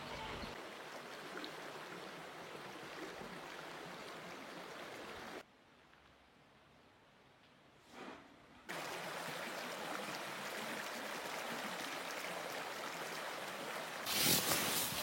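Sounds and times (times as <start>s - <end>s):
faint hiss: 14.0s - 15.0s.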